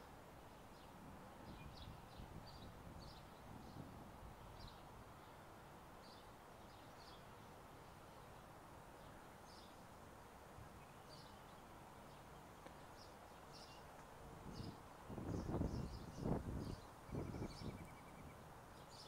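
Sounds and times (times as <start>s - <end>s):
low outdoor background noise: 0.0s - 19.0s
small birds chirping: 10.7s - 19.0s.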